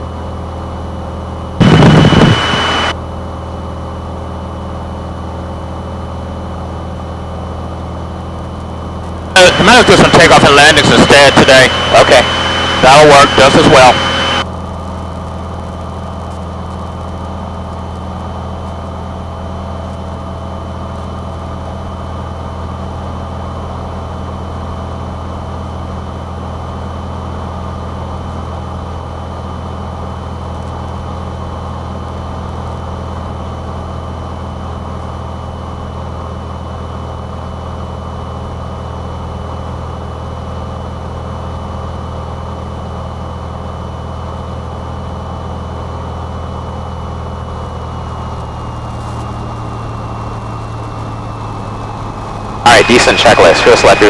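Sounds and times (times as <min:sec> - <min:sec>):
propeller plane engine droning: 0:00.0 - 0:54.0
high-pitched whine: 0:01.6 - 0:03.0, 0:09.1 - 0:14.5, 0:48.0 - 0:54.0.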